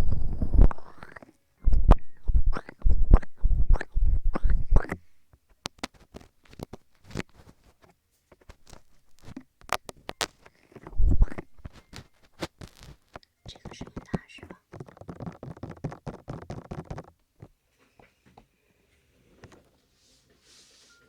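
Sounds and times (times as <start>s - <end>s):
fingers tapping a microphone: 0.0s - 7.4s, 8.4s - 18.5s
hands rubbing a microphone: 1.7s - 5.0s, 5.7s - 18.2s.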